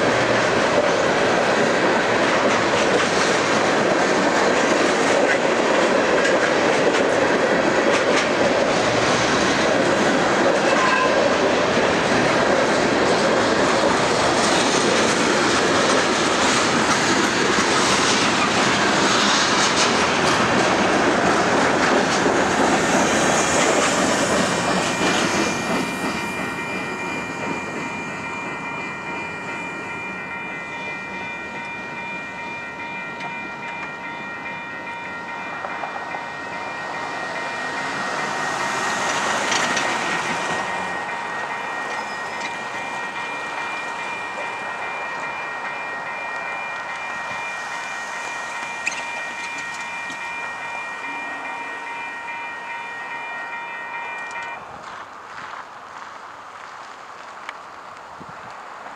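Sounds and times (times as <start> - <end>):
freight train rumbling past: 0.0 - 58.9
wheels clacking over rail joints: 0.0 - 58.9
high ringing tones: 23.9 - 54.6.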